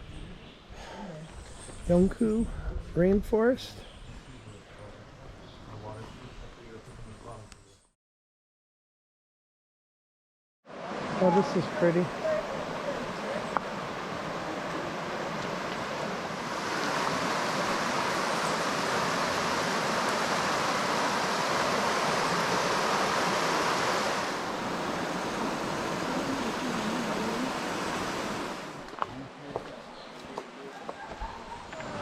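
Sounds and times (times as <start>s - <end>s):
stream running water: 10.7s - 29.4s.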